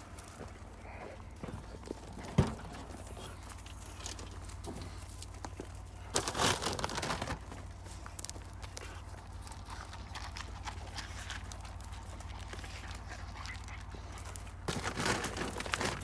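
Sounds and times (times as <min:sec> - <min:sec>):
plastic bag crinkling: 0:03.7 - 0:12.2, 0:14.5 - 0:16.0.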